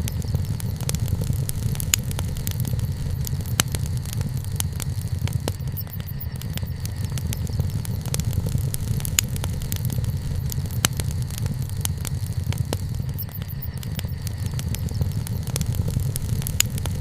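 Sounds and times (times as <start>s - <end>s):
bonfire crackling and popping: 0.0s - 17.0s
low rumble: 0.0s - 17.0s.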